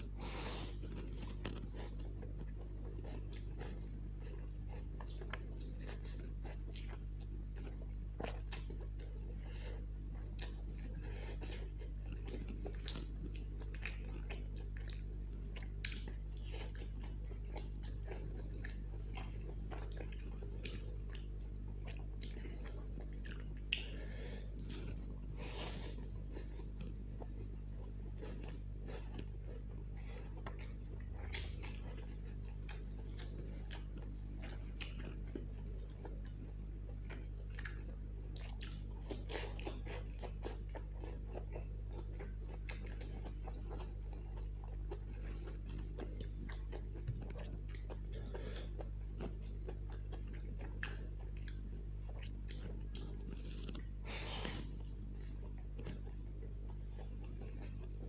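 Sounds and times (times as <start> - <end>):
low hum: 0.0 - 58.0
wet chewing and lip smacks: 0.0 - 58.0.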